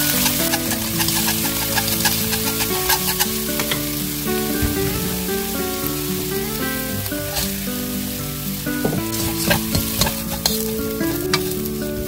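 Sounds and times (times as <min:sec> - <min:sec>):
wooden spatula scraping and tapping pan: 0:00.0 - 0:03.9, 0:08.8 - 0:11.6
garlic and chillies sizzling in oil: 0:00.0 - 0:12.0.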